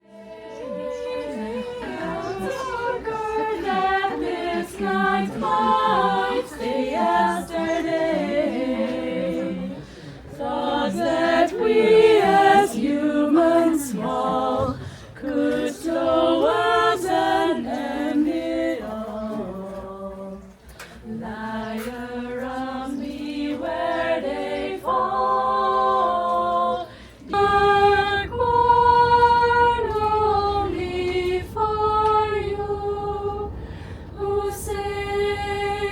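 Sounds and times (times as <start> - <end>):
choir singing a cappella: 0.0 - 35.9
low rumble: 27.2 - 35.9.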